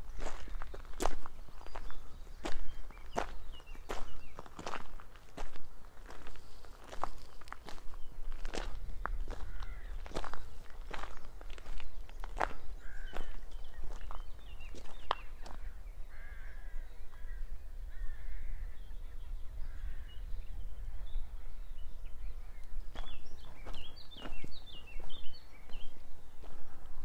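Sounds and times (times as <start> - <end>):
birds hoarse calls: 0.0 - 20.6
high bird chirping: 0.1 - 5.0, 9.4 - 17.5, 18.6 - 26.0.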